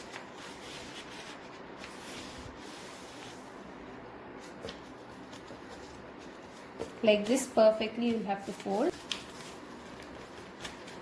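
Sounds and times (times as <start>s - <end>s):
paper rustling and folding: 0.0s - 3.8s, 4.4s - 11.0s.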